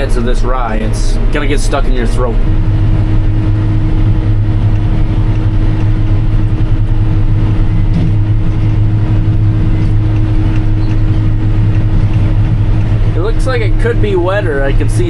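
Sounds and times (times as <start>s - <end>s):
farm machinery engine drone: 0.0s - 15.0s.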